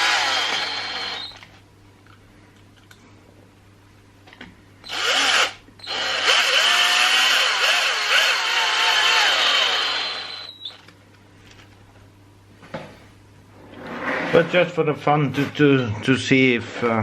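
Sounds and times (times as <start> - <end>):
electric drill running: 0.0 - 1.5, 4.8 - 10.8.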